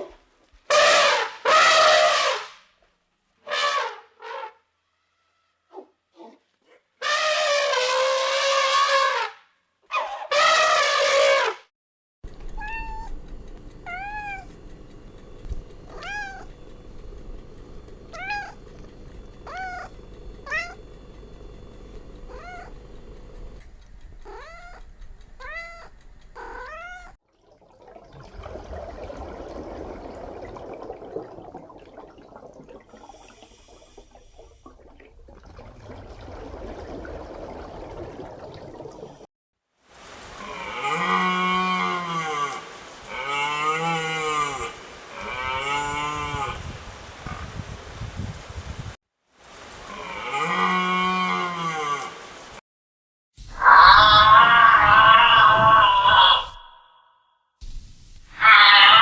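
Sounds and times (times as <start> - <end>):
cat meowing: 12.6 - 13.1, 13.8 - 14.5, 15.9 - 16.5, 18.2 - 18.6, 19.5 - 19.9, 20.5 - 20.8, 22.3 - 22.7, 24.2 - 24.8, 25.4 - 27.2, 58.4 - 59.0
cat drawn-out call: 53.5 - 56.8, 58.3 - 59.0.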